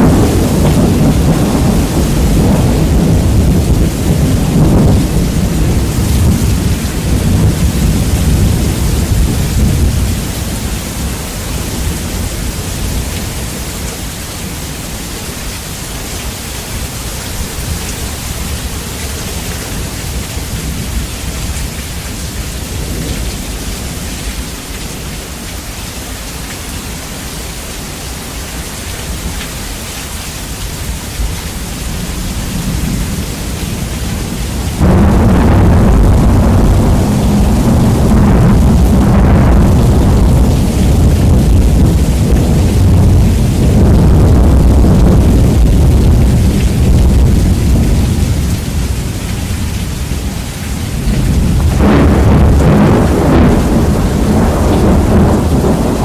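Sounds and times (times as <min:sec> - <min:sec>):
loud thunder boom: 0:00.0 - 0:10.1, 0:34.8 - 0:48.6, 0:51.1 - 0:56.0
thunder rumbling: 0:00.0 - 0:14.9, 0:31.2 - 0:56.0
heavy rain: 0:00.0 - 0:56.0.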